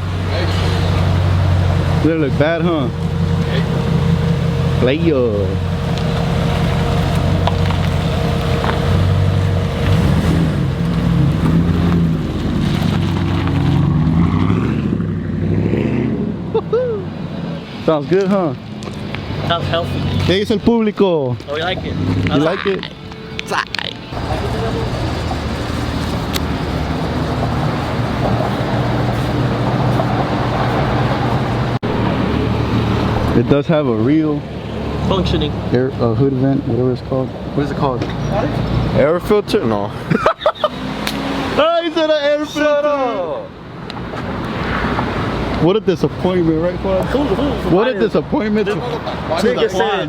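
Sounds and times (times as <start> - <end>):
engine exhaust rumble: 0.0 - 18.0, 24.1 - 41.6.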